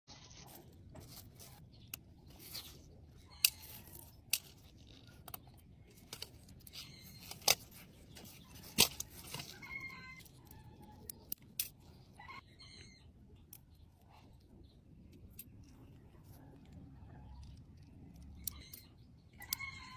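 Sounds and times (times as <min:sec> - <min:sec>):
metal tools clicking on watch parts: 0:17.2 - 0:19.9.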